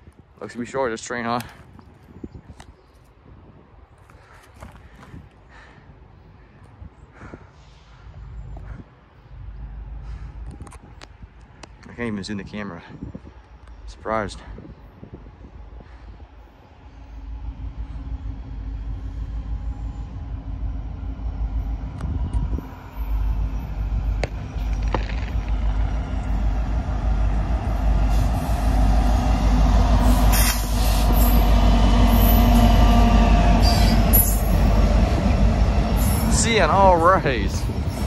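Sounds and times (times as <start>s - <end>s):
freight train cars rumbling: 0.0s - 38.0s
wheels squealing on rails: 16.1s - 38.0s.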